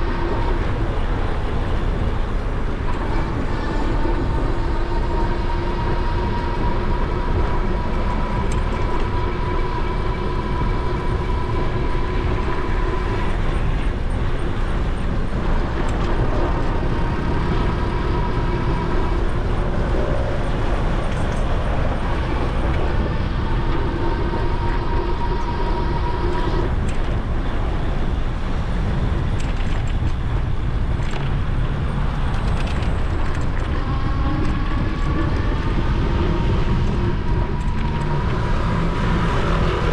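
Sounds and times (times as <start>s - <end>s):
electric motor whine: 0.0s - 28.5s
wind rushing over microphone: 0.0s - 39.9s.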